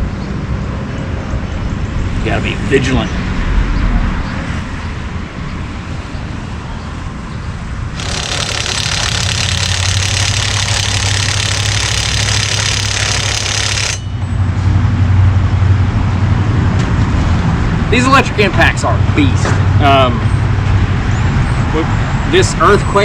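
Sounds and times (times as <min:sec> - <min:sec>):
electric impact wrench hammering: 0:08.0 - 0:14.3.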